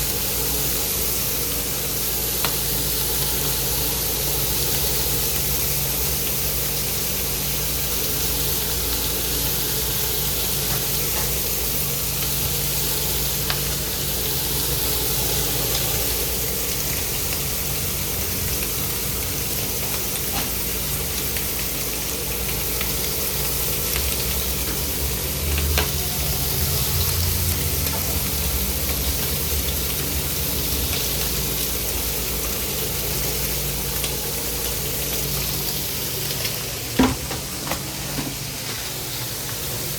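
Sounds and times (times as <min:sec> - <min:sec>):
food sizzling: 0:00.0 - 0:39.9.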